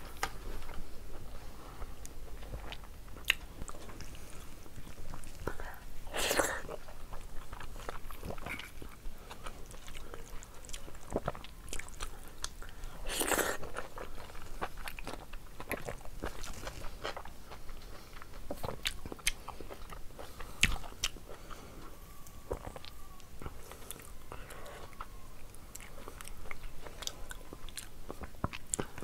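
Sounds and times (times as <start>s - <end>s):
person chewing with wet smacks: 1.9s - 29.0s.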